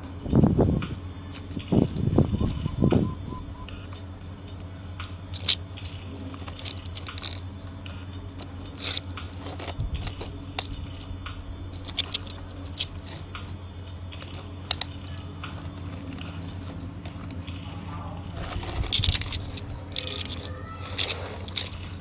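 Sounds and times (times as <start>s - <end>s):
steady low hum: 0.0s - 6.2s, 7.5s - 20.0s
plastic toys clicking together: 6.2s - 11.1s, 18.5s - 22.0s.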